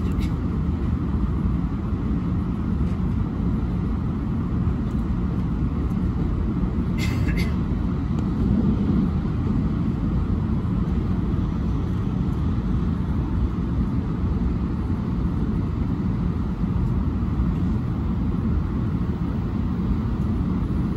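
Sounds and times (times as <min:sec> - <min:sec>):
train low rumble: 0:00.0 - 0:20.9.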